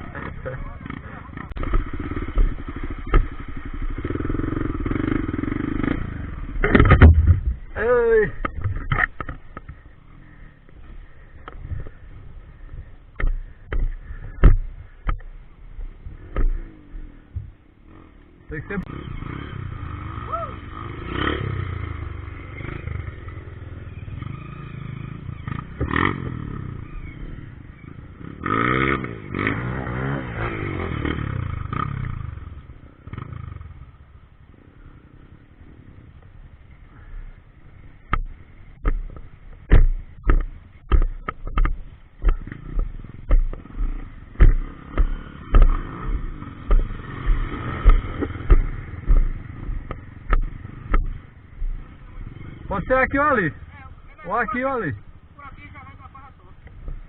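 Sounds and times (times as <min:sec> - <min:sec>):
motorcycle engines revving: 0:00.0 - 0:57.0
sharp thumps: 0:01.4 - 0:10.0, 0:12.7 - 0:17.7, 0:38.0 - 0:52.6.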